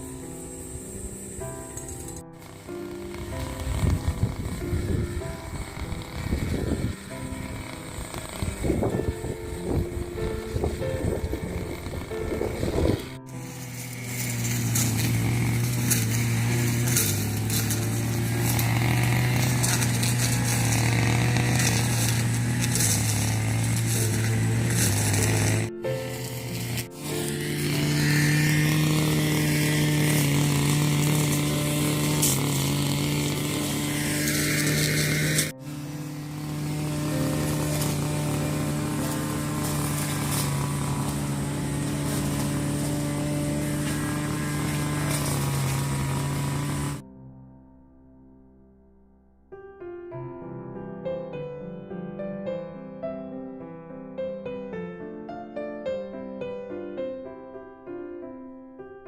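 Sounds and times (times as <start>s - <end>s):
small engine humming: 0.0s - 47.0s.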